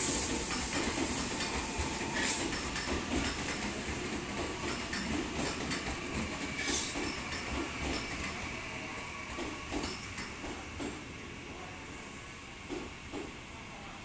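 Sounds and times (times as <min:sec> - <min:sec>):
air hiss: 0:00.0 - 0:02.5
train rumble: 0:00.0 - 0:11.7
train wheel clicks: 0:00.2 - 0:08.4, 0:09.4 - 0:11.0.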